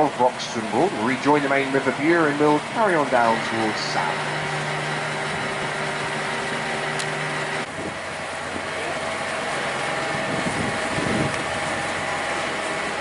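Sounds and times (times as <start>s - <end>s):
boat engine running: 0.0s - 13.0s
water noise: 0.0s - 13.0s
wind noise: 7.6s - 8.6s, 10.0s - 12.2s.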